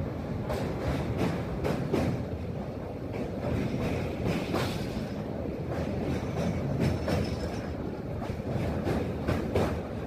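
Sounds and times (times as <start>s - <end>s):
train wheels rumbling on rails: 0.0s - 10.0s
wheels clacking over rail joints: 3.1s - 10.0s.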